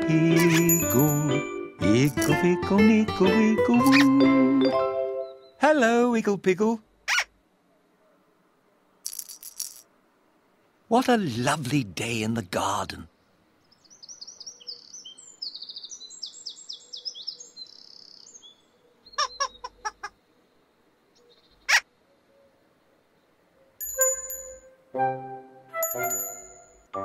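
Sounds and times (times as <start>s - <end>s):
tinkling chime-like notes: 0.5s - 1.5s, 23.8s - 24.8s, 25.8s - 26.9s
birds chirping and trilling: 5.0s - 5.8s, 12.8s - 24.4s.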